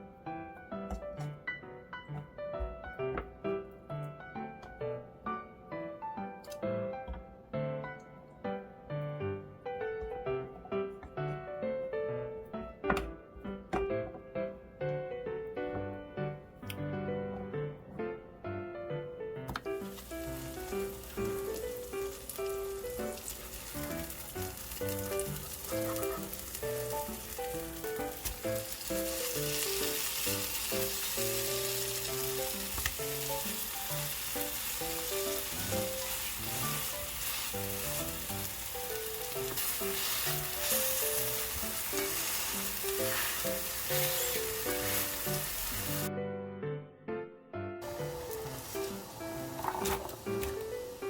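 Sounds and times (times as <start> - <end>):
light background music: 0.0 - 51.0
food sizzling in a frying pan: 19.8 - 46.1, 47.8 - 51.0.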